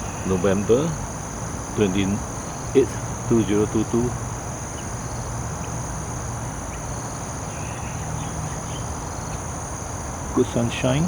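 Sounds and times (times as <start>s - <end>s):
low even hum: 0.0s - 4.8s, 10.3s - 11.0s
faint bird calls: 0.0s - 11.0s
insects droning: 0.0s - 11.0s.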